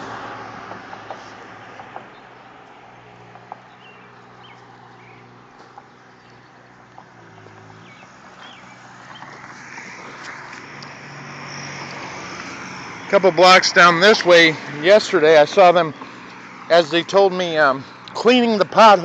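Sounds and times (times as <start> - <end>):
low engine hum: 0.0 - 17.2
passing car: 0.0 - 19.0
vehicle approaching: 0.0 - 19.0
bird chirps: 3.7 - 5.3, 7.4 - 9.4.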